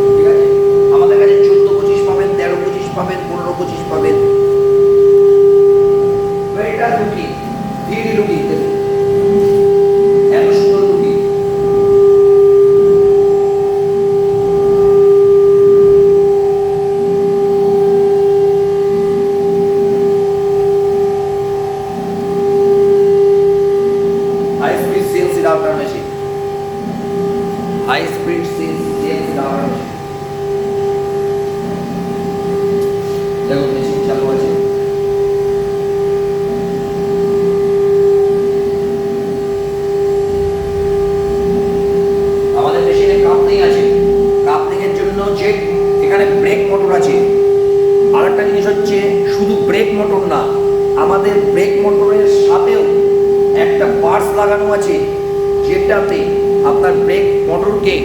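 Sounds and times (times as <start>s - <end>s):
router spindle high whine: 0.0s - 58.0s
uneven low hum: 0.0s - 58.0s
router whine: 36.4s - 44.5s
low rumble: 39.6s - 44.4s.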